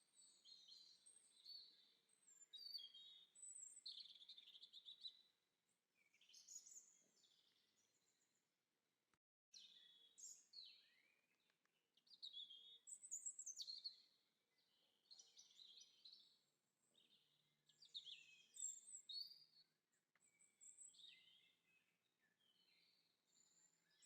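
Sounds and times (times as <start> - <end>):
small birds chirping: 0.0 - 5.3, 6.0 - 8.2, 9.6 - 24.0.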